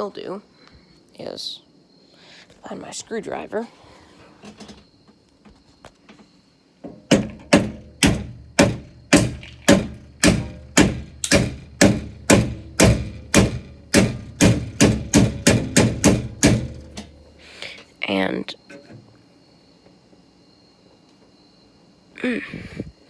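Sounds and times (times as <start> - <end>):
sharp knocks of hammering: 6.8 - 17.4.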